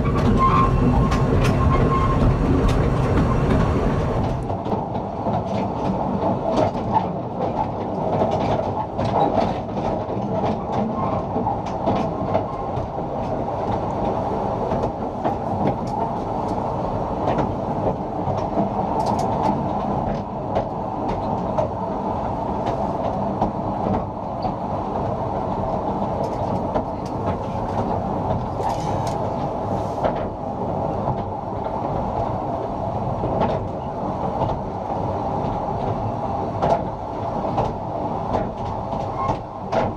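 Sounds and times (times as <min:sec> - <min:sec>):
track clicks and knocks: 0:00.0 - 0:07.0, 0:36.6 - 0:36.9, 0:37.5 - 0:39.9
train wheels rumbling: 0:00.0 - 0:39.9.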